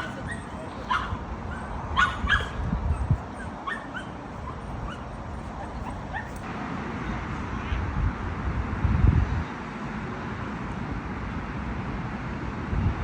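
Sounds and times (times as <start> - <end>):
small dog yipping barks: 0.0 - 5.0, 5.6 - 6.4.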